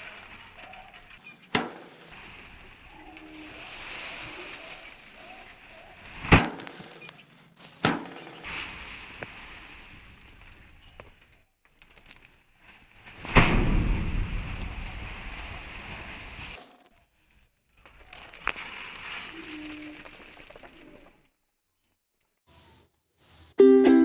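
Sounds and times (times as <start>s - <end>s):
faint steady hiss: 0.0s - 5.0s, 6.1s - 10.5s
sharp thwacks: 1.4s - 2.2s, 6.3s - 8.6s.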